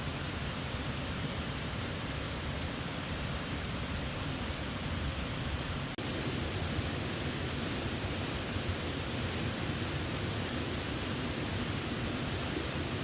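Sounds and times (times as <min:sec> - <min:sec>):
waterfall rushing: 0:05.8 - 0:13.0.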